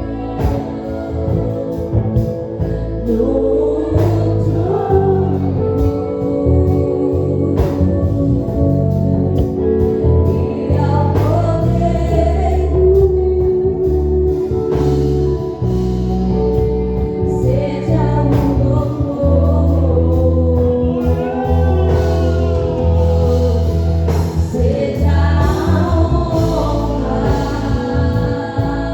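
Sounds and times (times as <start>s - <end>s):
gospel singers with band: 0.0s - 28.9s
steady bass notes: 0.0s - 28.9s.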